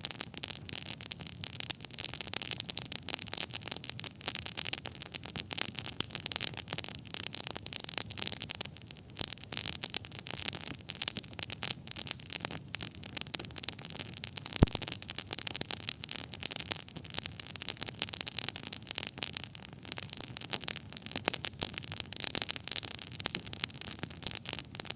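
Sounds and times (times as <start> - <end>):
campfire crackling: 0.2 - 24.9
sharp fire pop: 14.6 - 14.9.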